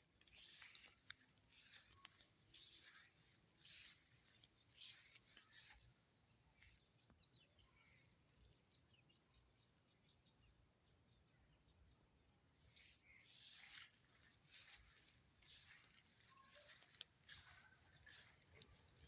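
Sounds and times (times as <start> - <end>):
soft rustling: 0.0 - 6.8, 12.7 - 19.0
birds chirping: 0.0 - 19.0.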